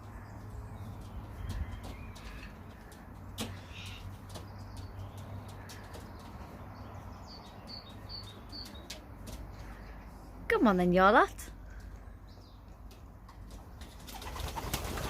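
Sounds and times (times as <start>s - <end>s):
pigeon wing flaps: 13.8s - 15.0s.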